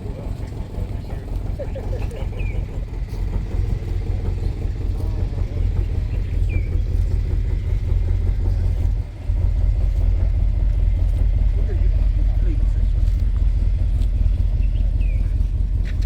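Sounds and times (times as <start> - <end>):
car engine running: 0.0 - 16.0
people talking: 0.0 - 16.0.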